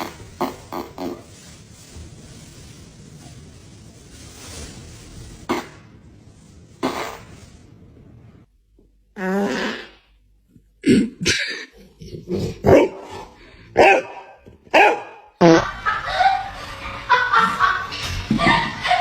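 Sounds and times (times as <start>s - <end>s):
fart sounds: 0.0s - 1.4s, 5.5s - 6.0s, 6.8s - 7.6s, 9.2s - 10.1s, 15.4s - 15.7s.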